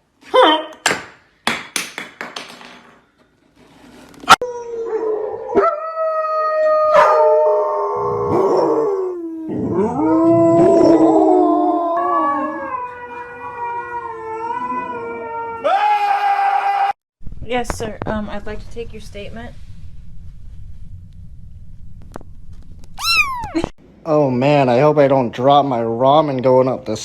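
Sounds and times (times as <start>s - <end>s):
dogs howling: 4.4s - 15.8s.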